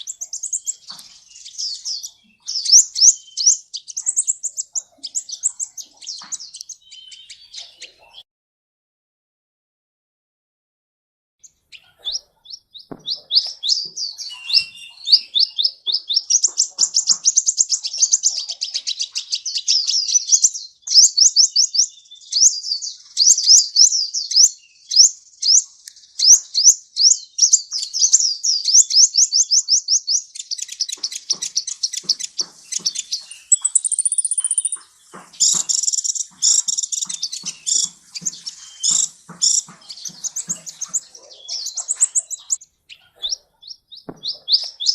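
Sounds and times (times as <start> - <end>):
bird chirps and trills: 0.0 - 8.2, 11.4 - 44.9.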